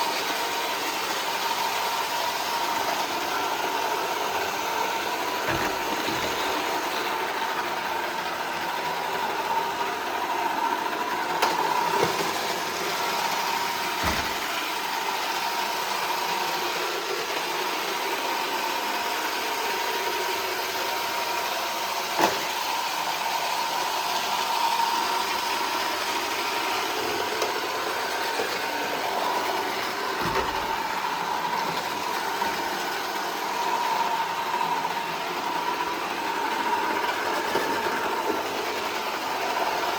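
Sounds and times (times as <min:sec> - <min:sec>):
robot vacuum motor whirring: 0:00.2 - 0:15.3, 0:23.9 - 0:39.9.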